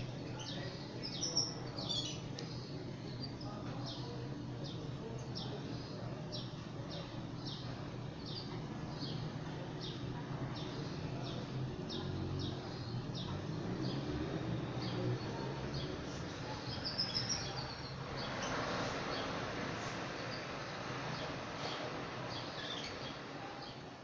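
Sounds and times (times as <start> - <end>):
canary chirping: 0.3 - 2.3, 15.7 - 19.3, 22.3 - 23.2.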